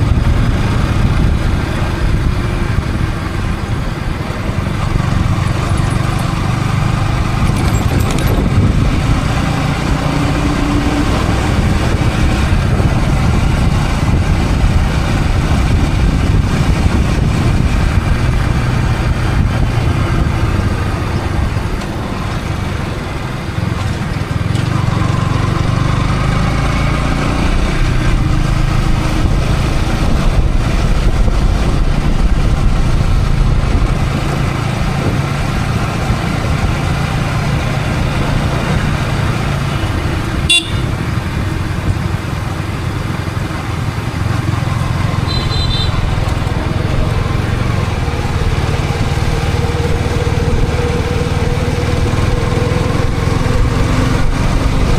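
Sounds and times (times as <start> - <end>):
motorcycle engine running: 0.0 - 54.9
road and wind noise: 0.0 - 54.9
traffic horns: 39.6 - 41.2, 45.1 - 46.4
short high beep: 40.5 - 40.9.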